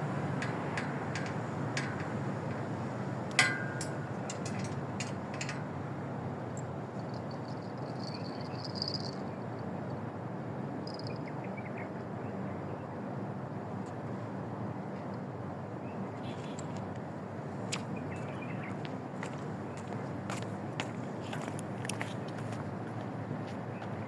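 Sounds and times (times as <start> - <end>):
outdoor background noise: 0.0 - 24.0
sharp ringing click: 3.4 - 4.4.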